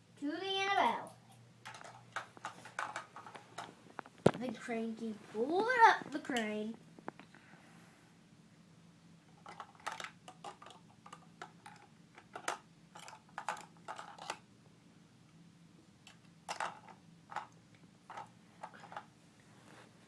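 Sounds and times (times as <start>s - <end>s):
faint steady hum: 0.0s - 20.0s
plastic toy pieces clicking: 1.7s - 3.7s, 9.4s - 14.4s, 16.1s - 19.0s.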